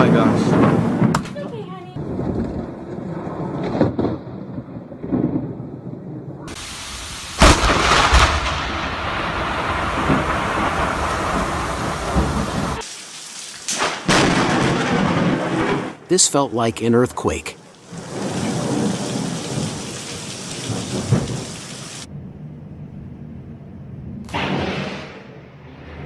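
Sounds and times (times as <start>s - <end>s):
loud thunderclap: 0.0s - 1.4s, 2.0s - 12.8s, 13.8s - 16.0s, 17.9s - 22.1s
thunder rumbling: 0.0s - 12.8s, 13.8s - 16.5s, 17.5s - 22.4s
heavy rain: 6.5s - 22.1s.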